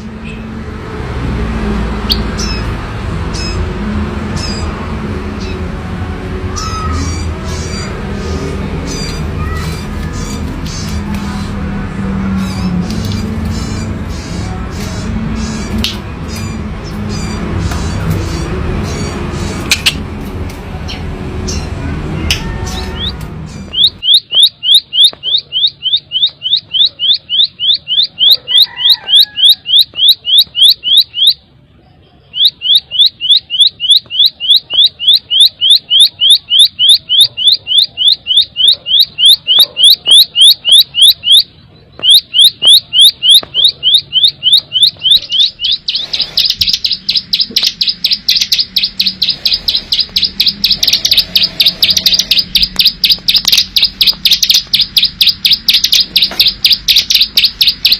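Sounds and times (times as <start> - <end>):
bird singing rapid high notes: 6.5 - 11.6, 20.9 - 31.4, 32.2 - 57.9.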